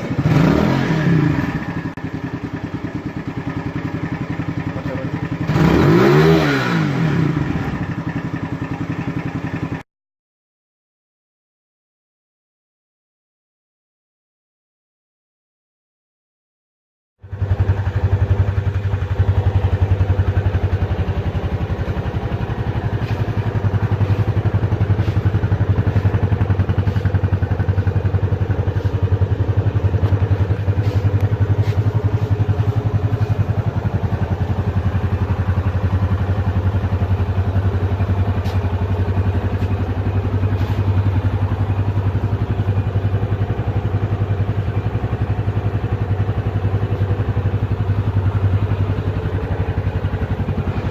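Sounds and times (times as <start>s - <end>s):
motorcycle engine idling: 0.0s - 9.8s, 17.2s - 50.9s.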